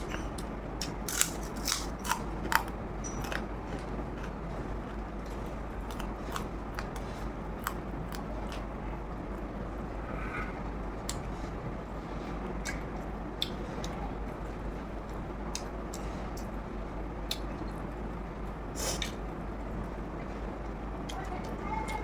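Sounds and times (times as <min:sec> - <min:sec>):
chewing crunches and mouth sounds: 0:00.0 - 0:08.7.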